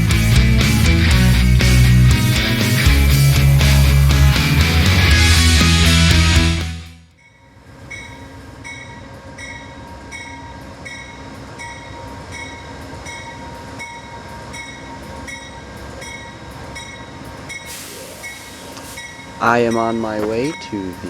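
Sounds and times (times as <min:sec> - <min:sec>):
train rumbling: 0:00.0 - 0:06.7, 0:07.4 - 0:21.0
short high ringing tone: 0:15.4 - 0:21.0.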